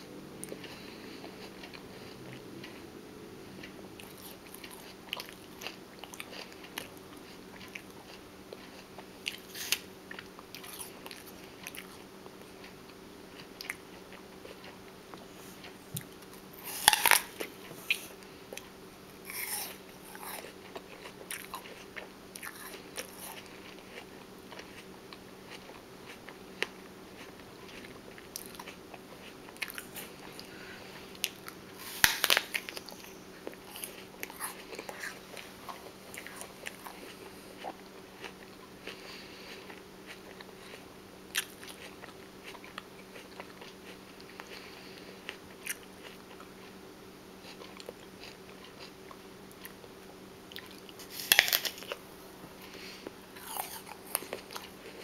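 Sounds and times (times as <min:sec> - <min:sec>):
person chewing crunchy food: 0:00.4 - 0:46.8, 0:47.4 - 0:55.0.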